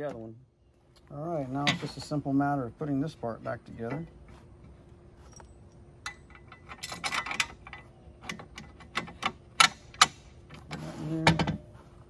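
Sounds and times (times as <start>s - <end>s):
metal parts clinking: 5.2s - 10.2s.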